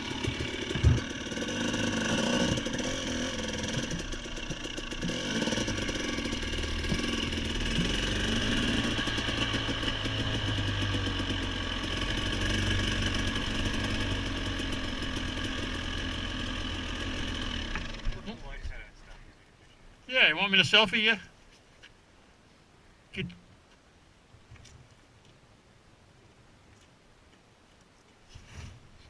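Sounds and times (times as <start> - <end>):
vehicle engine idling: 0.0 - 19.3.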